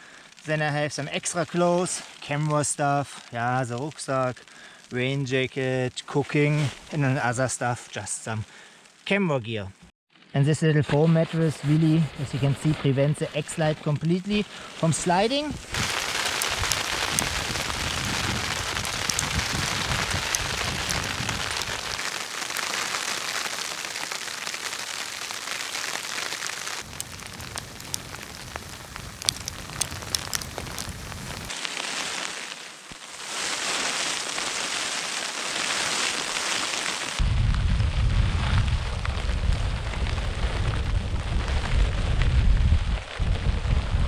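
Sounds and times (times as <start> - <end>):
hail pattering on tent fabric: 15.7 - 32.0
wind gusts rumbling: 15.8 - 31.5.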